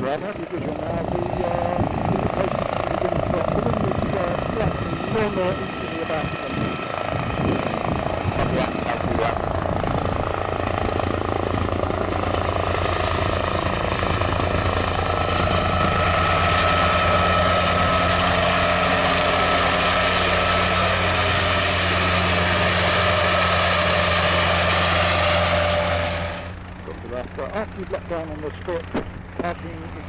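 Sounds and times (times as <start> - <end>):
helicopter rotor beating: 0.0 - 30.0
high steady whine: 12.5 - 27.1.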